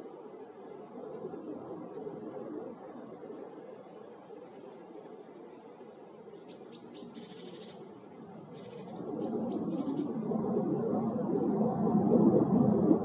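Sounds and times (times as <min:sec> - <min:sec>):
small bird chirping: 0:06.4 - 0:10.1
distant jet engine rumble: 0:07.8 - 0:13.0.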